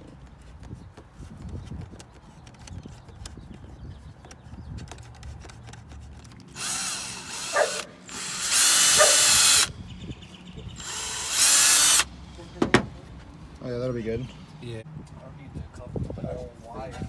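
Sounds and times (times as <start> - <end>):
power drill whine: 6.5 - 9.7, 10.8 - 12.1.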